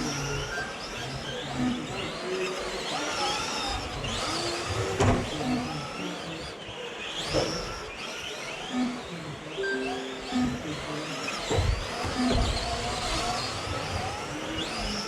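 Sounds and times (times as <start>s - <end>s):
rc truck motors whining: 0.0s - 9.6s, 10.2s - 15.0s.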